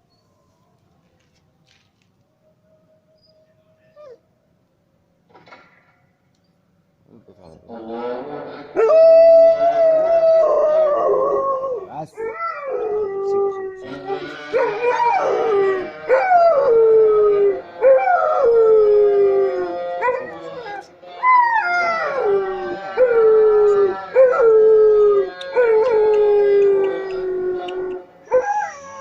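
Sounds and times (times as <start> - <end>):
dog howling: 8.8 - 29.0.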